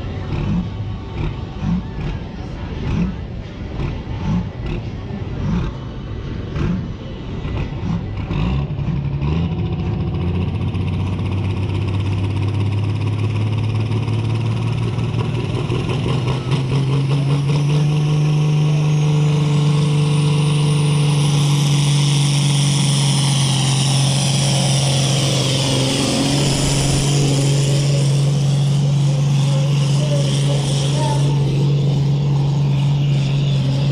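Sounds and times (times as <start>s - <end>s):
tractor engine under load: 0.0s - 33.9s
high whine rising: 18.2s - 33.9s.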